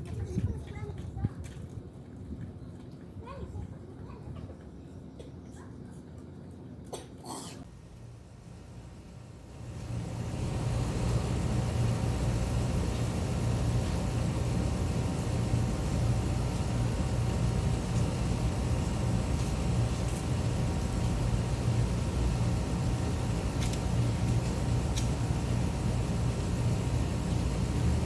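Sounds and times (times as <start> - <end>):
faint hum: 0.0 - 28.0
low mechanical rumble: 7.6 - 28.0.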